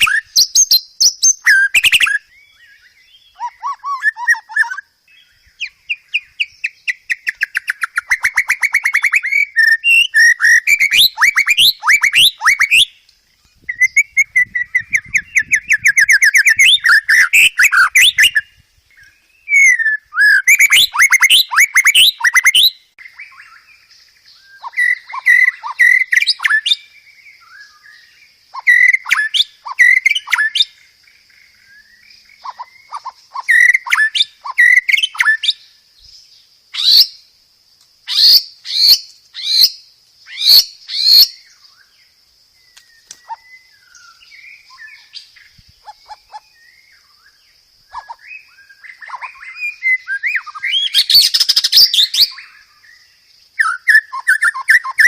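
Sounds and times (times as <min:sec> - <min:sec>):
sharp downslurred bird whistles: 0:00.0 - 0:04.8, 0:05.6 - 0:13.0, 0:13.7 - 0:23.6, 0:24.5 - 0:26.8, 0:28.6 - 0:30.7, 0:31.9 - 0:35.6, 0:36.7 - 0:37.2, 0:38.1 - 0:41.8, 0:47.9 - 0:52.6, 0:53.6 - 0:55.0
bird singing whistled trills: 0:00.0 - 0:37.3, 0:38.0 - 0:55.0.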